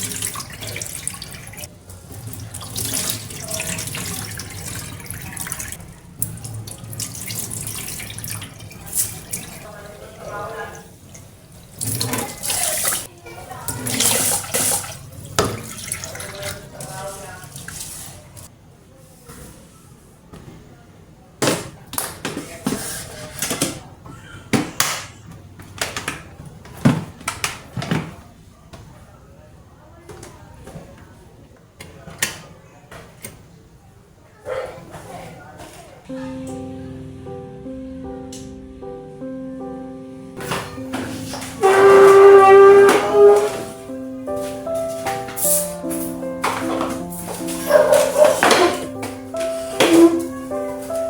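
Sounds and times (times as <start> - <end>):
tap water running into sink: 0.0 - 10.0, 10.7 - 18.5.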